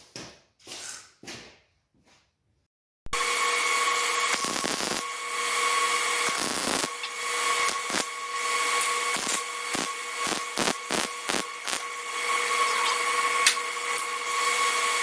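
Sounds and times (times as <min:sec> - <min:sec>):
angle grinder grinding steel: 0:03.2 - 0:15.0.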